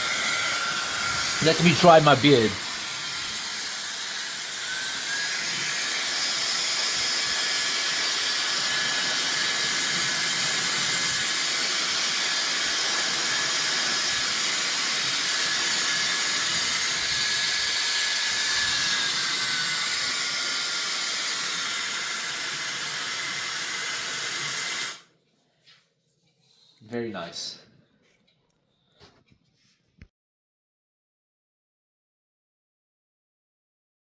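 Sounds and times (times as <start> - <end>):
high motor whine: 0.0 - 24.9
hairdryer blowing air: 0.0 - 25.0.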